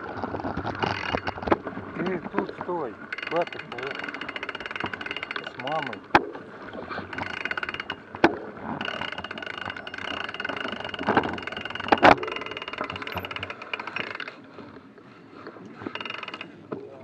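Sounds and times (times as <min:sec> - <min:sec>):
bicycle freehub ticking: 0:03.1 - 0:06.1, 0:07.1 - 0:08.2, 0:08.8 - 0:14.4, 0:15.8 - 0:16.5.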